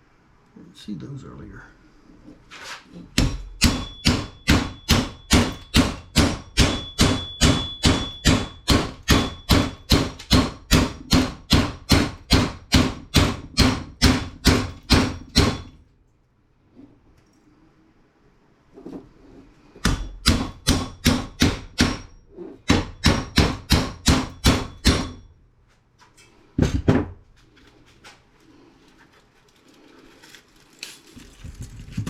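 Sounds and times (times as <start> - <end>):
hammer pounding on metal: 3.1 - 15.8, 19.8 - 25.4.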